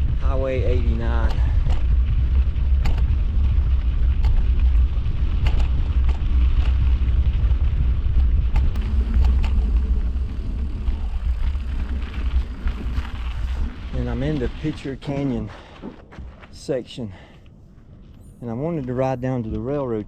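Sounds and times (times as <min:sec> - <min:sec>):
bike riding over sandy rocky trail: 0:00.0 - 0:17.9
wind rumble on microphone: 0:00.0 - 0:20.0
clicks and knocks from bike: 0:01.2 - 0:02.0, 0:02.7 - 0:07.1, 0:08.2 - 0:09.6.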